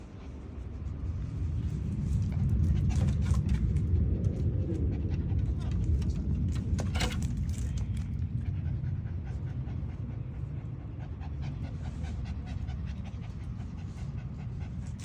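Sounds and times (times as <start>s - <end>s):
steady low rumble: 0.0s - 15.0s
small dog panting: 8.1s - 15.0s.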